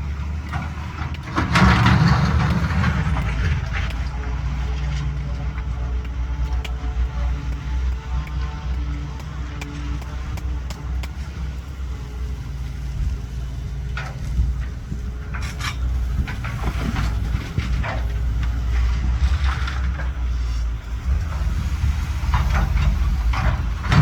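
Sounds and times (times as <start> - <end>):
excavator diesel engine running: 0.0 - 24.0
metallic clanks and scrapes: 0.5 - 7.2, 15.3 - 18.2.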